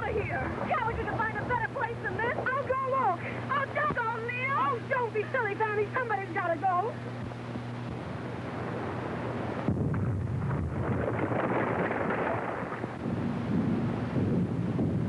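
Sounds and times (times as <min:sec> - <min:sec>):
film soundtrack hiss and hum: 0:00.0 - 0:15.0
artillery shell blast rumbling: 0:09.6 - 0:15.0.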